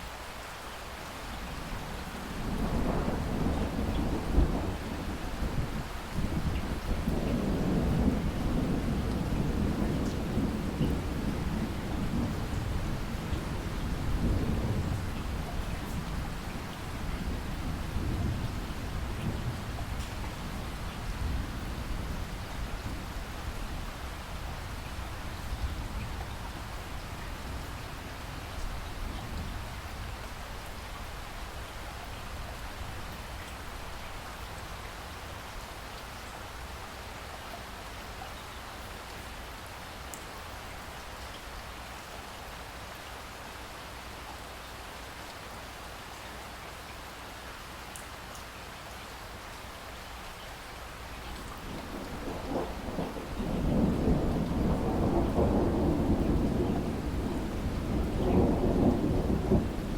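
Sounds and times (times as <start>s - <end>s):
steady rain falling: 0.0s - 59.9s
thunder rumbling: 2.2s - 26.2s, 51.4s - 59.9s.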